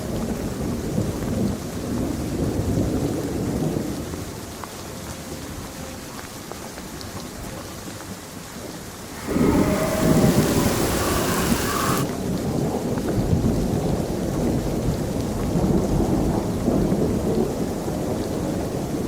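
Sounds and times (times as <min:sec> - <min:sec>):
steady rain: 0:00.0 - 0:19.0
heavy rain hissing: 0:09.0 - 0:12.8.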